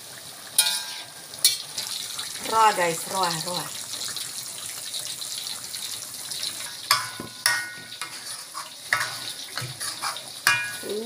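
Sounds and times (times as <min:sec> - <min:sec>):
sauce sizzling in a wok: 0:00.0 - 0:11.0
spatula clinking on wok: 0:00.6 - 0:01.6, 0:06.9 - 0:08.3, 0:08.9 - 0:11.0
spatula scraping a pan: 0:00.6 - 0:01.6, 0:06.6 - 0:10.9.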